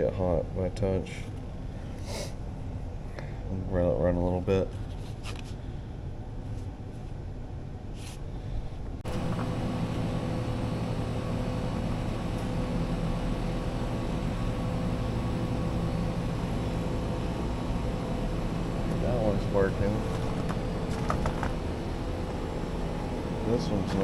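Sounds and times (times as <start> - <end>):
heat pump humming: 8.2 - 24.0.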